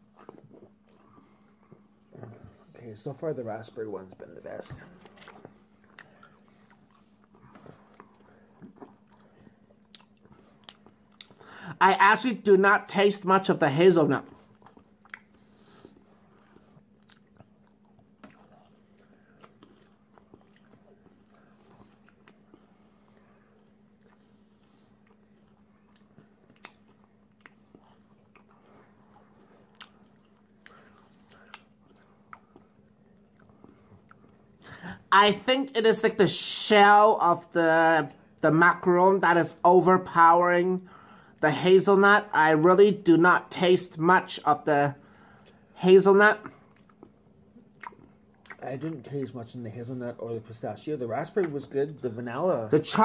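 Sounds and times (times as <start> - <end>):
faint chewing: 0.0 - 11.6, 14.2 - 34.8, 46.4 - 49.4
low steady hum: 0.0 - 53.0
soft mouth clicks: 14.6 - 15.4, 25.9 - 28.5, 46.7 - 48.6.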